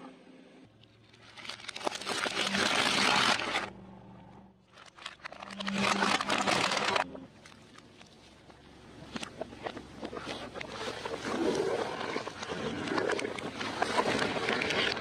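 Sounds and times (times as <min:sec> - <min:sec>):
crunchy food being crushed: 0:01.1 - 0:03.7, 0:04.7 - 0:07.0.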